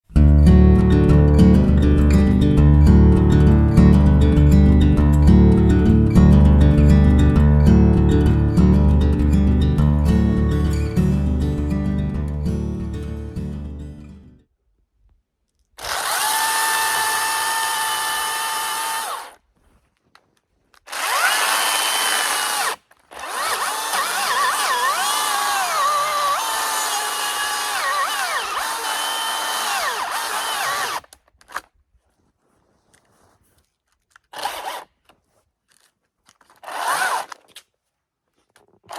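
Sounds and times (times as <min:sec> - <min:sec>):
battery chainsaw whining: 0:15.8 - 0:19.4, 0:20.9 - 0:31.1, 0:36.6 - 0:37.3.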